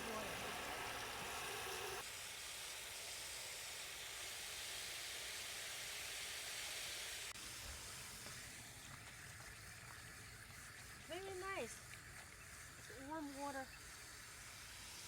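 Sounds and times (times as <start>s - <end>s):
water pouring into tub: 0.0s - 2.0s.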